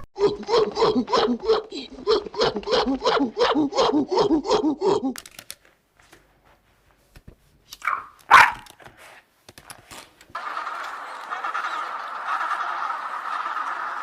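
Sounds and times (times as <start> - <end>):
dog barking: 7.8 - 8.7.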